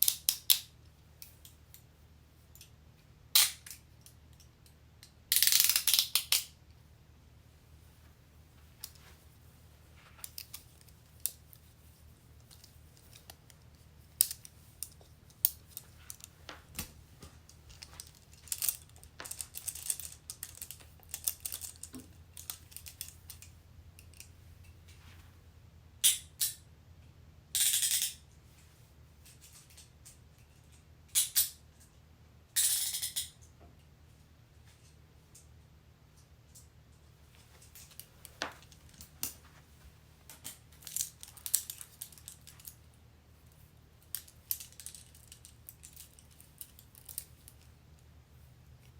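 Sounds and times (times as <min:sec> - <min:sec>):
handcuffs clicking: 0:05.3 - 0:06.5, 0:14.2 - 0:16.3, 0:17.7 - 0:23.5, 0:40.5 - 0:42.8
handcuffs ratcheting: 0:05.3 - 0:06.6, 0:14.2 - 0:16.3, 0:17.7 - 0:23.5, 0:40.5 - 0:42.8, 0:44.0 - 0:47.7
handcuffs jangling: 0:17.7 - 0:23.5, 0:40.5 - 0:42.8, 0:44.0 - 0:47.7.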